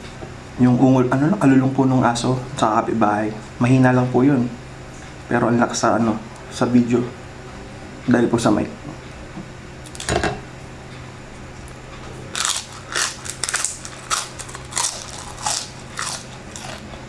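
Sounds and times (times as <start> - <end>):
crispy chicken skin crunching: 12.3 - 17.0.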